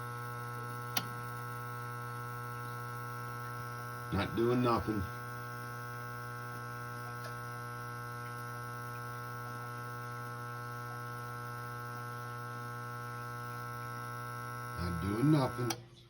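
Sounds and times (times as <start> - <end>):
electrical motor hum: 0.0 - 16.0.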